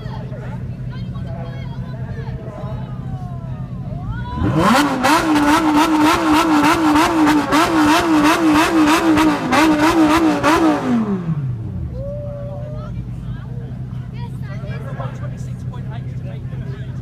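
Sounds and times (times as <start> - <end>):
sports car engine revving: 4.2 - 12.0.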